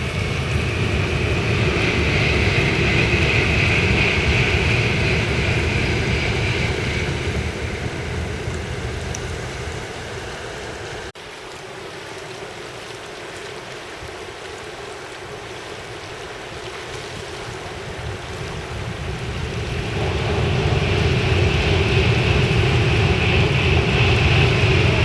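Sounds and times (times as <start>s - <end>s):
river water flowing: 0.0s - 2.2s, 7.8s - 21.2s
approaching train rumble: 0.0s - 11.1s, 17.6s - 25.0s
wind rushing: 0.0s - 11.1s, 17.7s - 25.0s.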